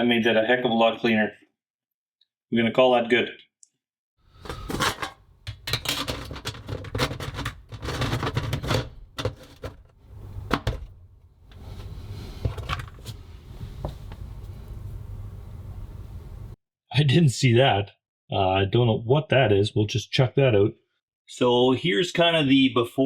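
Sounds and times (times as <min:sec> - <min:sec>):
plastic and metal clicks and scrapes: 0:04.4 - 0:13.2.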